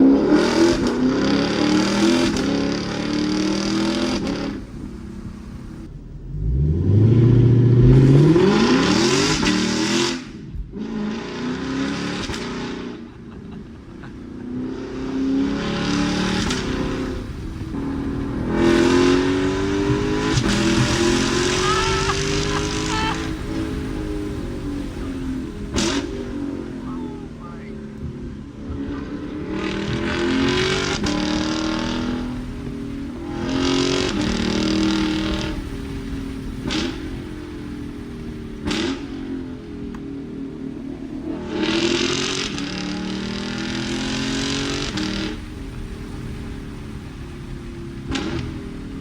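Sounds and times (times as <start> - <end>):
car engine accelerating hard: 0.0 - 49.0.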